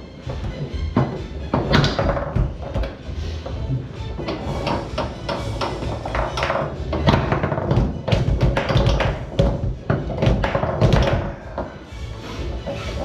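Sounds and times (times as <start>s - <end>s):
background music: 0.0s - 13.0s
foosball ball knocking: 0.4s - 3.0s, 4.2s - 11.7s.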